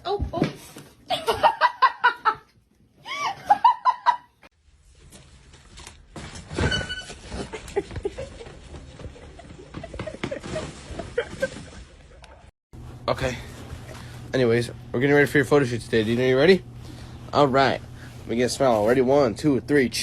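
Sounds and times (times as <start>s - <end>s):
person laughing: 1.1s - 4.3s, 7.4s - 12.5s.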